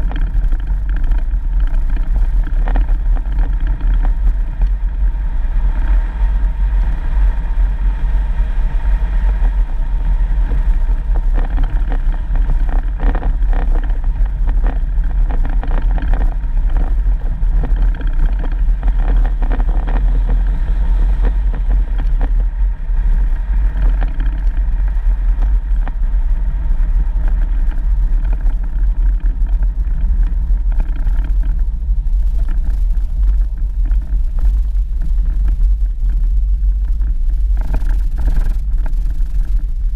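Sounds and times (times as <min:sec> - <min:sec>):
knocks from rough road: 0:00.0 - 0:04.8, 0:10.5 - 0:22.6, 0:23.5 - 0:26.1
vehicle engine and road rumble: 0:00.0 - 0:39.9.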